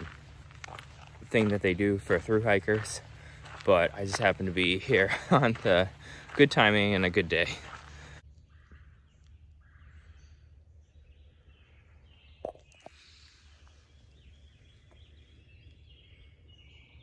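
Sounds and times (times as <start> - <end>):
low steady rumble: 0.0 - 12.4
birds singing: 0.0 - 17.0.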